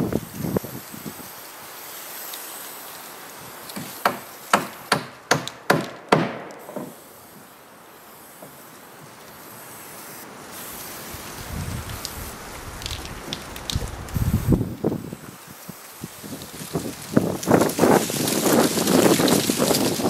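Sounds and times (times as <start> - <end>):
light wind: 0.0 - 20.0
hammer striking wood: 3.8 - 7.0.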